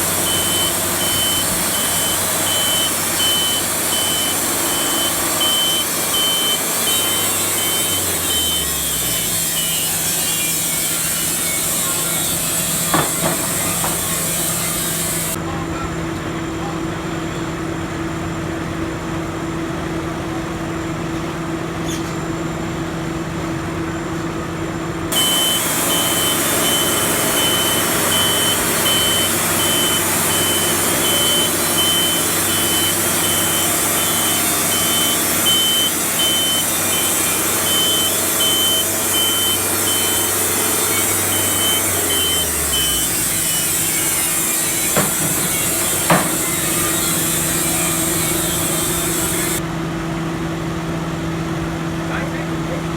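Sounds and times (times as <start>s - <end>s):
machinery engine running: 0.0s - 15.4s, 25.1s - 49.6s
electronic beeping: 0.1s - 8.9s, 25.1s - 43.1s.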